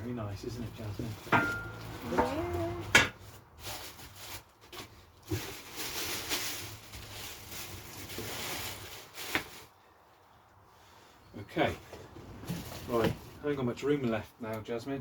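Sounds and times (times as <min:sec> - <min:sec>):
packaging rustling and scraping: 0:00.8 - 0:09.8, 0:12.0 - 0:13.4.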